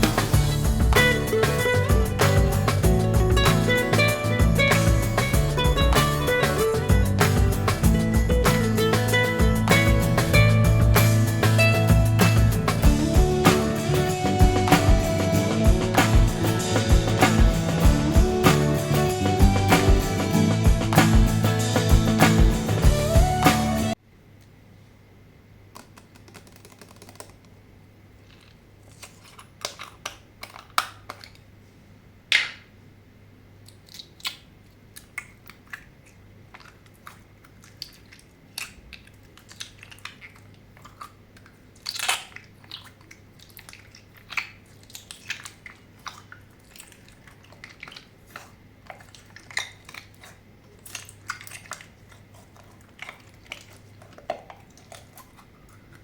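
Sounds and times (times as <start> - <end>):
slime squelching and popping: 28.3 - 31.5, 33.6 - 56.0.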